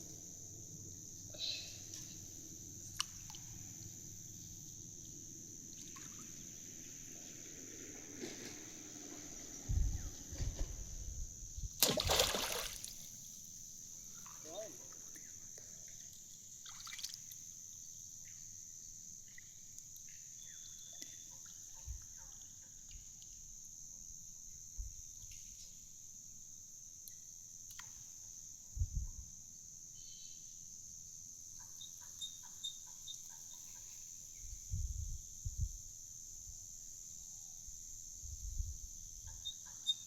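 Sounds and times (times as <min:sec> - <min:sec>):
steady high-pitched hiss: 0:00.0 - 0:40.0
water trickling and splashing: 0:11.8 - 0:13.2, 0:16.6 - 0:17.4.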